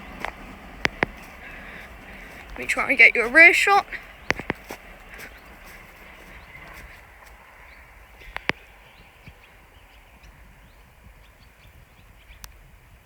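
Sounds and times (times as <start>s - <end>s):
faint low rumble: 0.0s - 13.0s
sharp clicks: 0.2s - 1.5s, 4.2s - 4.7s.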